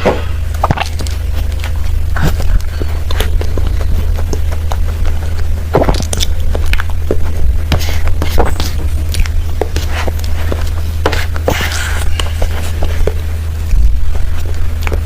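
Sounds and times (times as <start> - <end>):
person chewing cake: 0.0 - 15.0
steady low hum: 0.0 - 15.0.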